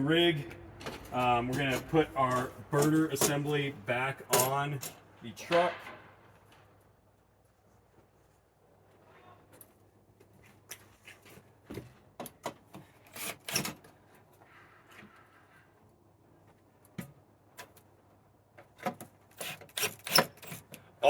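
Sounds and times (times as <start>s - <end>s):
metal knocks clicks and scraping: 0.8s - 6.3s.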